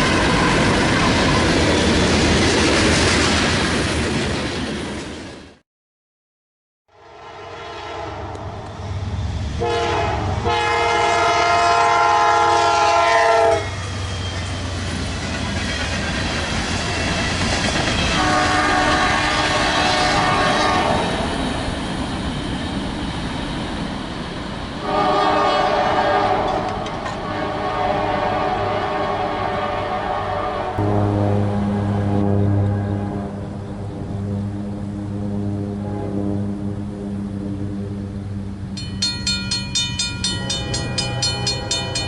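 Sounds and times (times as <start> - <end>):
passing train rumble: 0.0 - 5.6, 6.9 - 42.0
locomotive air horn blasts: 6.9 - 8.4, 9.6 - 13.8, 18.0 - 21.1, 24.8 - 37.2.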